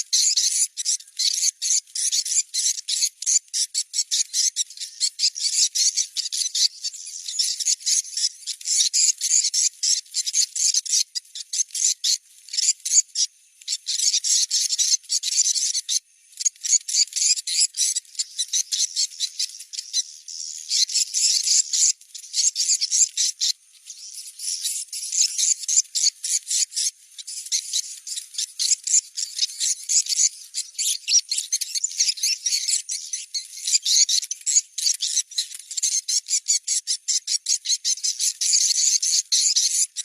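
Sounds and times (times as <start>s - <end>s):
high-pitched bird chirping: 13.8s - 40.0s.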